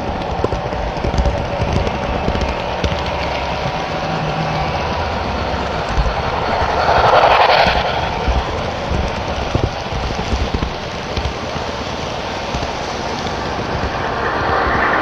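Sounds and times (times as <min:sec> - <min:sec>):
clicks of model train: 0:00.0 - 0:04.2, 0:10.0 - 0:14.7
hiss: 0:00.0 - 0:15.0
model train rumble: 0:00.0 - 0:15.0.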